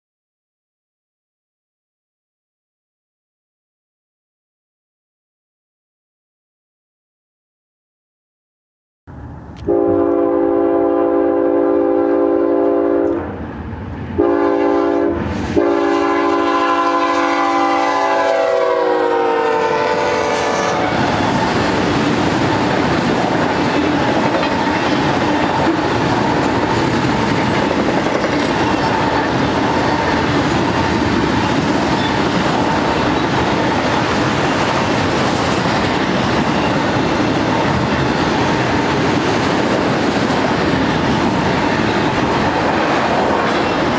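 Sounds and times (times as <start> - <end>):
locomotive air horn blasts: 9.6 - 13.2, 14.2 - 21.2
freight cars rumbling on rails: 18.4 - 43.9.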